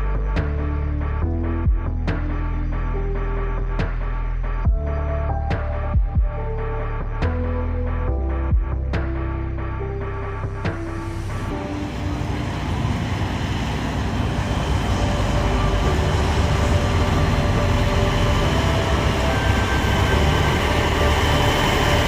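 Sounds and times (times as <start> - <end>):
heavy vehicle engine rumbling: 10.0 - 22.0.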